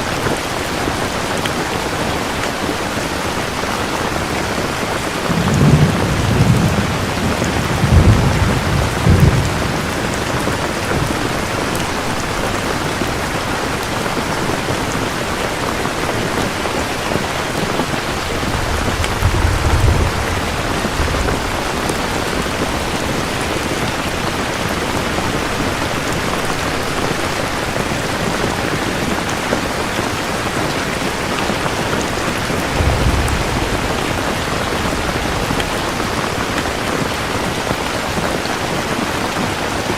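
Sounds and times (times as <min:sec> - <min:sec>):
heavy rain: 0:00.0 - 0:39.9
thunder rumbling: 0:04.2 - 0:29.2, 0:31.7 - 0:37.8.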